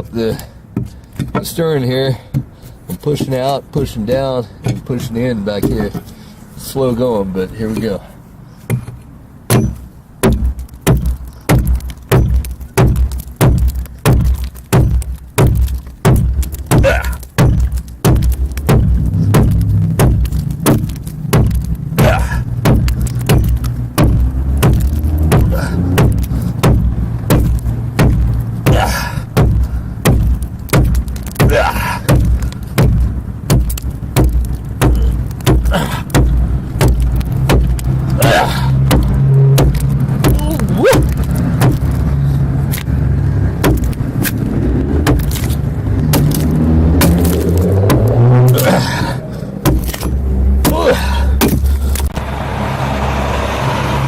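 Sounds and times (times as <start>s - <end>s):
adze chopping into wood: 8.7s - 43.0s, 43.6s - 52.2s.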